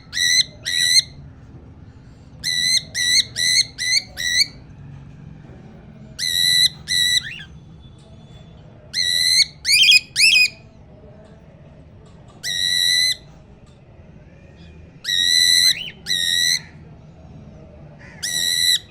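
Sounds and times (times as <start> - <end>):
cockatiel whistled calls: 2.4 - 4.6, 15.1 - 16.6.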